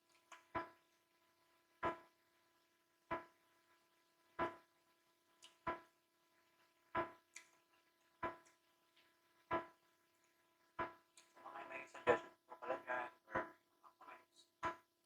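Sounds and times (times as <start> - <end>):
chewing and wet mouth smacks: 5.4 - 5.6, 7.3 - 9.1.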